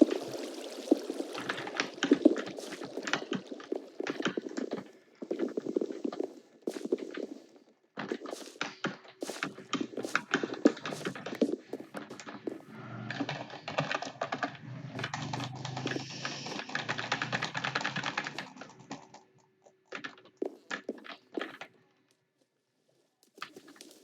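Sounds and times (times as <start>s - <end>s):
typing on computer keyboard: 13.0s - 19.2s.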